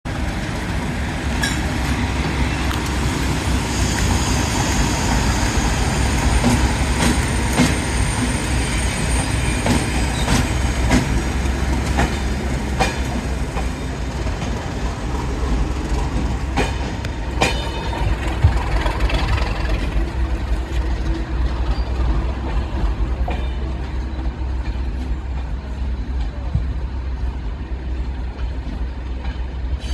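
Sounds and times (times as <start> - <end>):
diesel locomotive rumbling: 0.0 - 29.9
high wheel squeal: 3.6 - 10.6.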